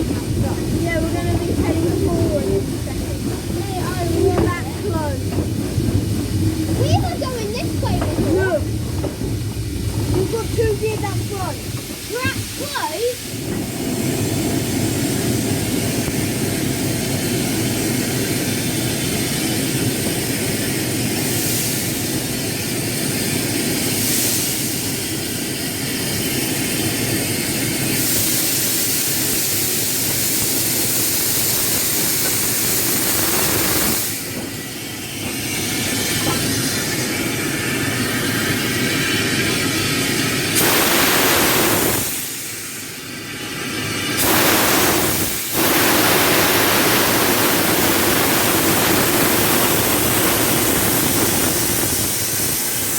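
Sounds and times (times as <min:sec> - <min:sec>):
locomotive running: 0:00.0 - 0:52.9
rushing hiss: 0:00.0 - 0:52.9.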